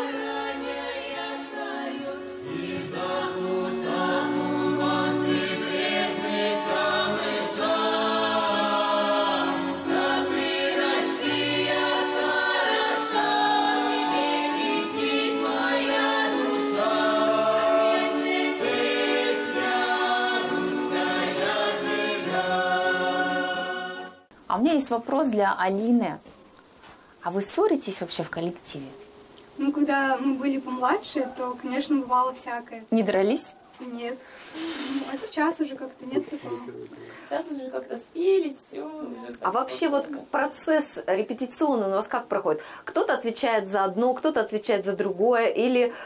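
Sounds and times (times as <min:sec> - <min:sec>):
youth vocal ensemble singing: 0:00.0 - 0:24.3.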